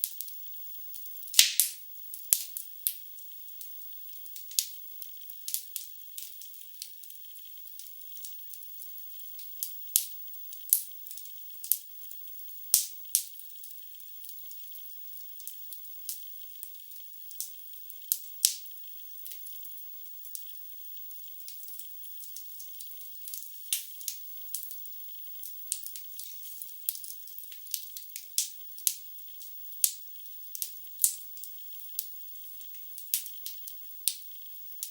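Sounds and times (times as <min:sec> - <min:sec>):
faint fire hiss: 0:00.0 - 0:34.9
wood fire crackling and popping: 0:01.3 - 0:03.0, 0:04.3 - 0:04.7, 0:05.5 - 0:06.9, 0:17.3 - 0:18.7, 0:21.4 - 0:24.8, 0:25.4 - 0:34.2.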